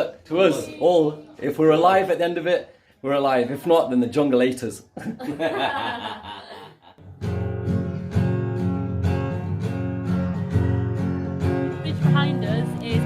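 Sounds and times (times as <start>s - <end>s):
strummed acoustic guitar: 7.0s - 13.0s.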